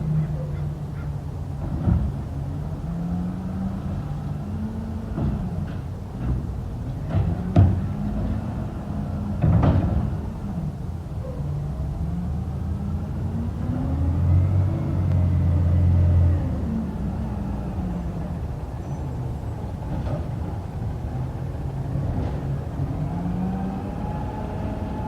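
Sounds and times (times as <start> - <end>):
diesel truck engine revving: 1.6 - 11.0, 11.8 - 25.0.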